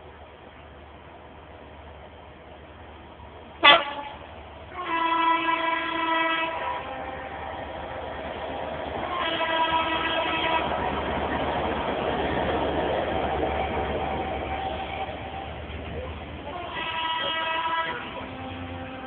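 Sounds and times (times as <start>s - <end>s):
locomotive horn blast: 3.6s - 8.0s, 9.0s - 10.7s, 16.4s - 19.0s.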